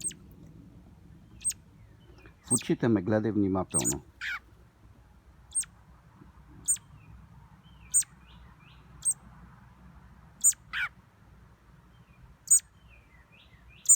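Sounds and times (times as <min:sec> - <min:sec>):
bird chirping: 0:00.0 - 0:00.3, 0:01.2 - 0:02.9, 0:03.6 - 0:04.4, 0:05.5 - 0:05.7, 0:06.6 - 0:09.2, 0:10.4 - 0:10.9, 0:11.9 - 0:13.9
lower falling bird call: 0:03.7 - 0:04.4.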